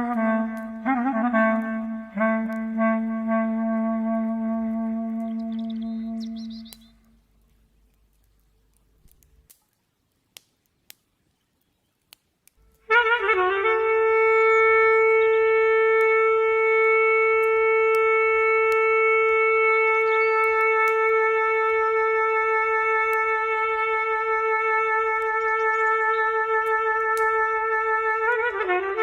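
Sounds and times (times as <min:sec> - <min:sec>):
clarinet long note: 0:00.0 - 0:07.2, 0:12.8 - 0:29.0.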